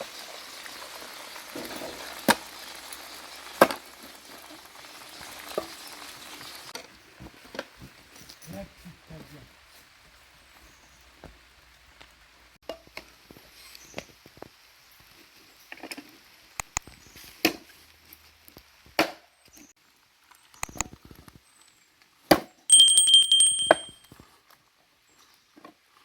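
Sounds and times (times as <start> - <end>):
high ringing tone: 22.7 - 24.1.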